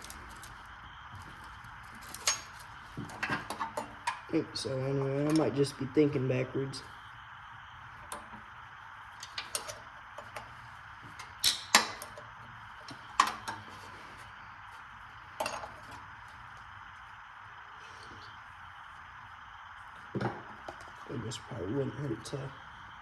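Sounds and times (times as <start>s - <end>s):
metal clanks: 11.1s - 12.2s.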